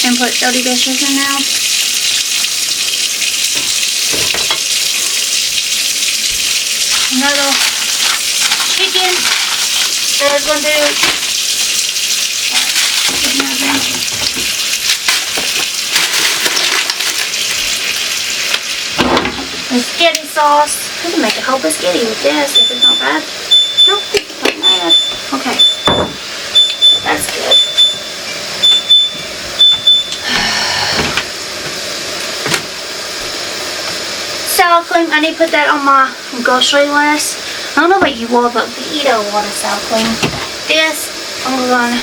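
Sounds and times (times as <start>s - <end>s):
tap water running into sink: 0.0s - 20.6s, 39.1s - 41.6s.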